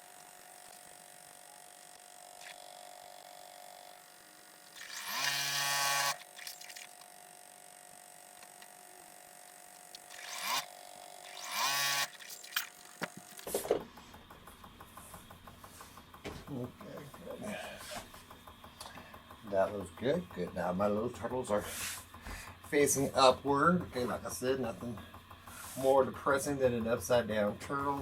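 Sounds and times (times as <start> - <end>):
sewing machine stitching: 4.6 - 7.1, 9.4 - 16.2.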